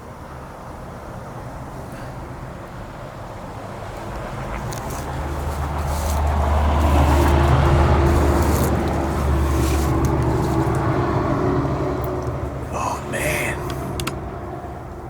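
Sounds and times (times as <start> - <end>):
motor vehicle engine hum: 3.6 - 12.7.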